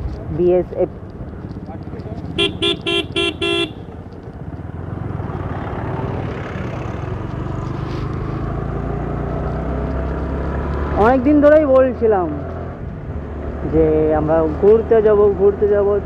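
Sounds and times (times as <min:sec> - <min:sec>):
motorcycle engine cruising: 0:00.0 - 0:16.0
road and wind noise: 0:00.0 - 0:16.0
horn beep: 0:02.4 - 0:03.8.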